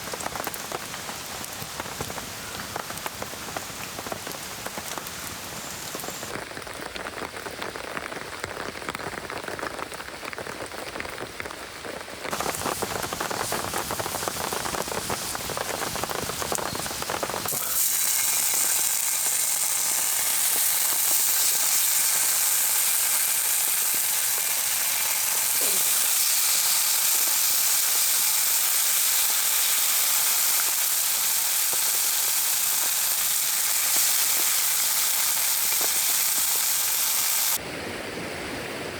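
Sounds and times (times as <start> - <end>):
rain pattering: 0.0 - 37.6
food sizzling in a pan: 12.3 - 37.6.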